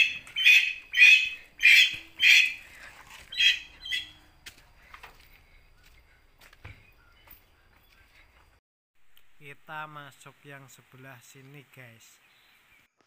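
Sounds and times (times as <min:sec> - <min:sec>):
bird squawking: 0:00.0 - 0:04.2.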